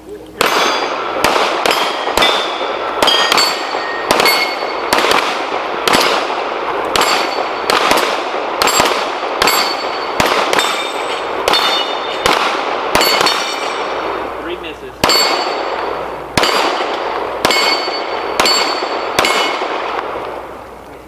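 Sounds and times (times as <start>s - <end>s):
bullets clanging on steel targets: 0.4s - 5.0s, 6.9s - 7.8s, 8.6s - 12.4s, 13.0s - 13.9s, 15.0s - 19.8s
pistol gunshots: 0.4s - 20.6s.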